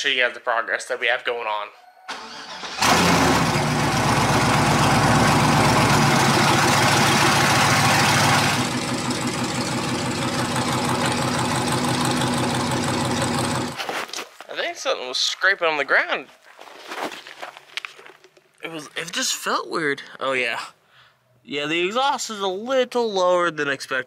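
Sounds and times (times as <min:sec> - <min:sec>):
car engine starting and idling: 0:02.1 - 0:13.8.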